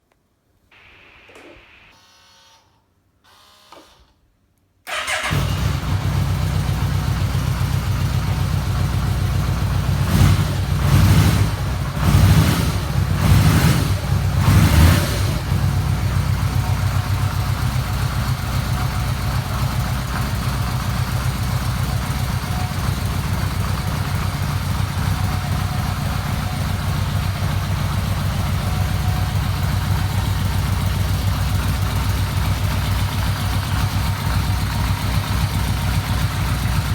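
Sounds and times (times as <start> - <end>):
motorcycle engine revving and idling: 4.9 - 36.9.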